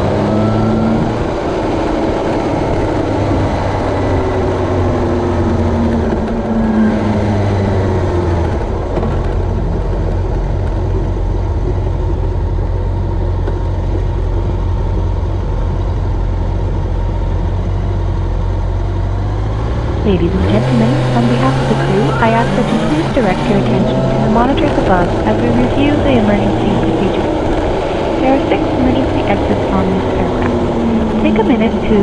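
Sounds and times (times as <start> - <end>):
engine running: 0.0 - 32.0
steady rushing noise: 19.2 - 32.0.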